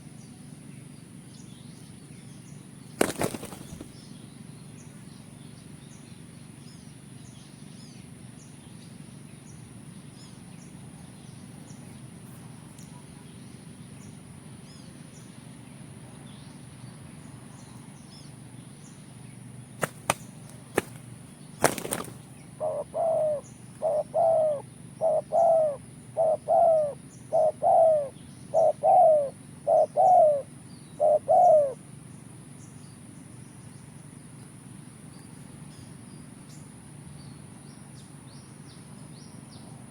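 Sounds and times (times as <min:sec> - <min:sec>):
dove cooing: 0:21.6 - 0:31.8.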